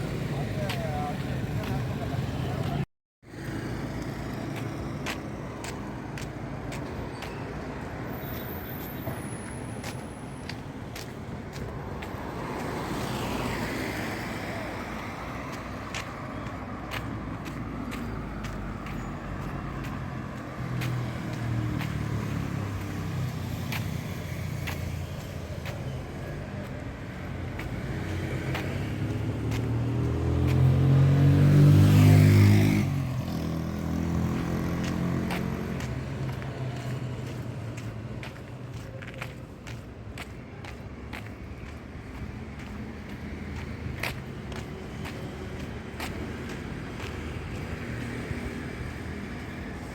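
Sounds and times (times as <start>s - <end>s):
road traffic: 0.0s - 49.9s
vehicle passing close: 27.8s - 37.9s.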